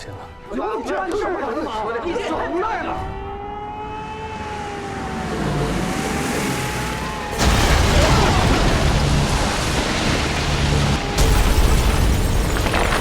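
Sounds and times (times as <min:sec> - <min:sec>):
air-raid siren wailing: 0:00.0 - 0:11.3
loud explosion with heavy rumble: 0:07.3 - 0:13.0.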